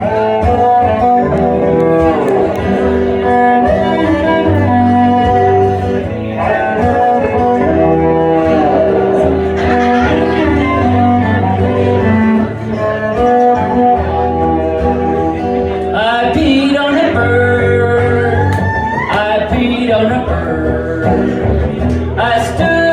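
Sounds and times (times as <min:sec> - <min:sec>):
plucked guitar: 0:00.0 - 0:22.9
bowed cello notes: 0:00.6 - 0:16.1.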